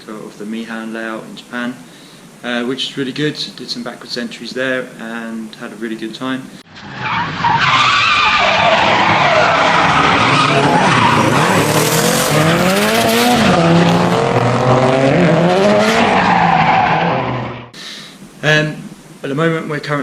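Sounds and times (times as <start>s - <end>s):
car engine revving: 6.7s - 17.7s
tyre screech: 6.8s - 15.0s.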